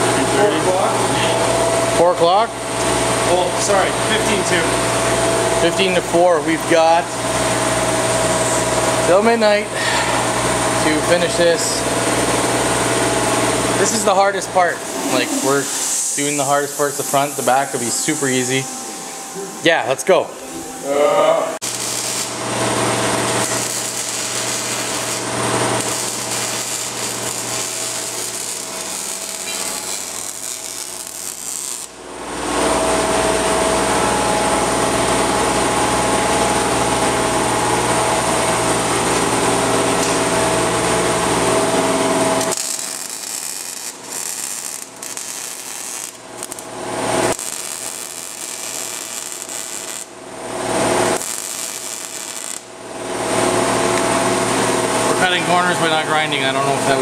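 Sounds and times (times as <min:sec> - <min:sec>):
power tool cutting steel: 0:14.9 - 0:19.2, 0:21.6 - 0:32.0, 0:42.4 - 0:50.2, 0:50.8 - 0:52.7.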